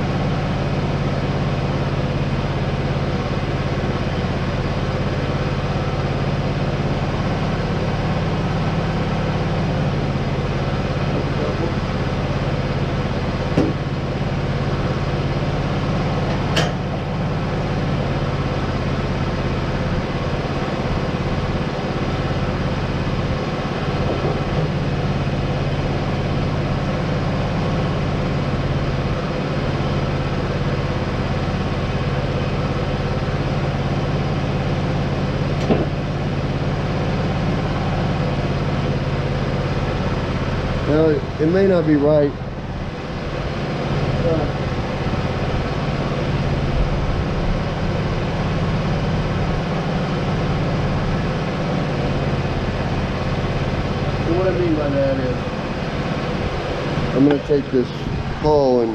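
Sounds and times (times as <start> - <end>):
engine idling: 0.0 - 58.9
short metallic knocks: 16.3 - 16.9.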